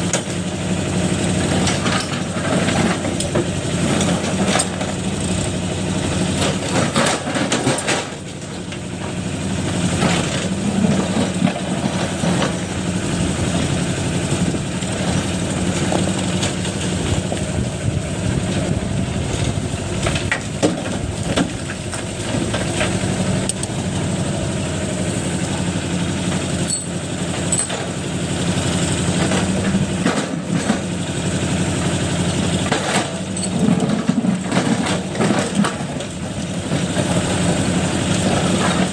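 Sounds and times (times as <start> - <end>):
backhoe diesel engine running: 0.0 - 38.9
machine clanks and knocks: 26.3 - 28.0, 29.1 - 30.9, 32.6 - 36.9.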